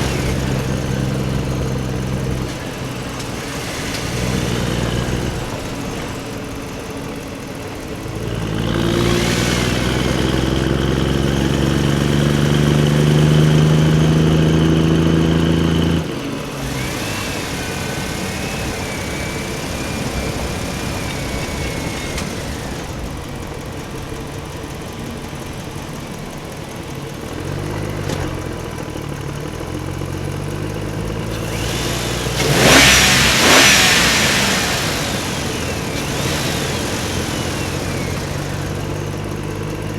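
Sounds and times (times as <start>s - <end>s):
toy vehicle motor running: 31.3s - 39.0s.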